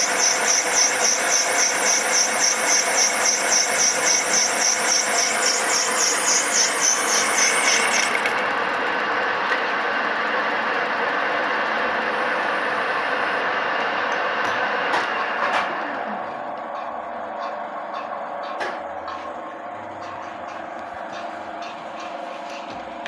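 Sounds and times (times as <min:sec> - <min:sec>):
lathe cutting high-pitched whine: 0:00.0 - 0:13.6
lathe running noise: 0:00.0 - 0:23.0.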